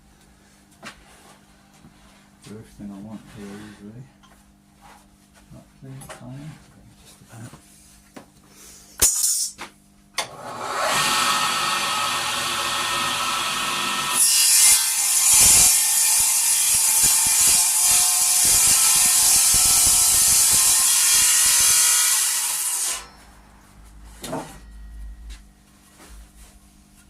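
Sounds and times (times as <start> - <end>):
power saw cutting timber: 10.2 - 23.1.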